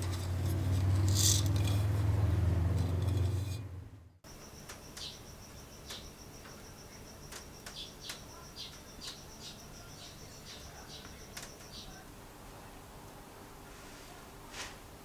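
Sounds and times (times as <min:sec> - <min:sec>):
insect chirping: 0:04.3 - 0:12.1.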